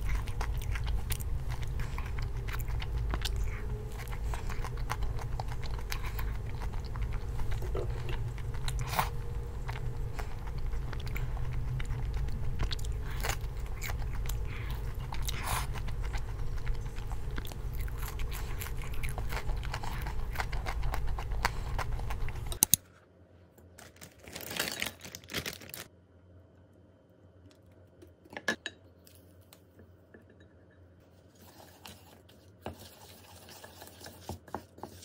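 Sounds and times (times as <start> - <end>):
crunchy pastry chewing: 0.0 - 22.6
low room hum: 0.0 - 35.0.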